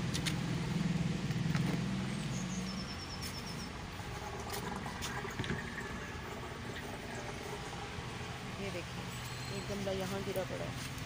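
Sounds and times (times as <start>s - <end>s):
outdoor background noise: 0.0s - 11.0s
small bird chirping: 2.1s - 3.8s.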